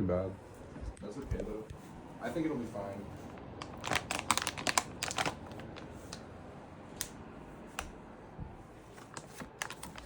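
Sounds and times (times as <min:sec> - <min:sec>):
plastic packaging crinkling: 0:03.1 - 0:06.2, 0:08.9 - 0:10.0.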